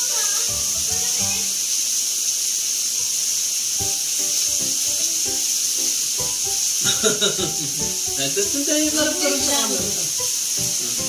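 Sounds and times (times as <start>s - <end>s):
meat sizzling on a grill: 0.0s - 11.0s
background music: 3.8s - 11.0s.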